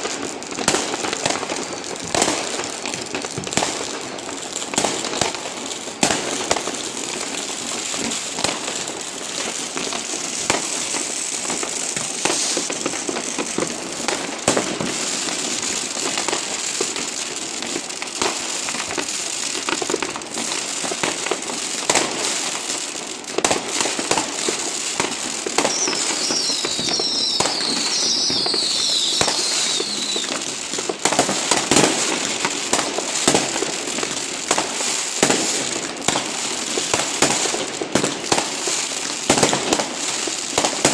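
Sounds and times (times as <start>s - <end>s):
fireworks crackling and banging: 0.0s - 40.9s
whistling firework glides: 10.3s - 13.5s, 24.1s - 32.2s.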